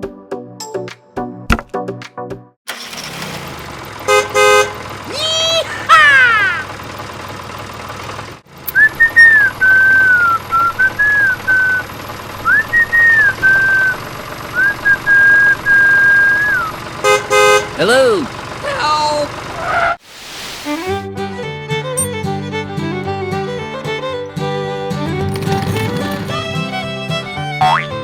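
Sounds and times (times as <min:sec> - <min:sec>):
whistled tune: 0:08.7 - 0:16.8, 0:27.5 - 0:28.0
cartoon-like pitch sweeps: 0:27.6 - 0:27.9.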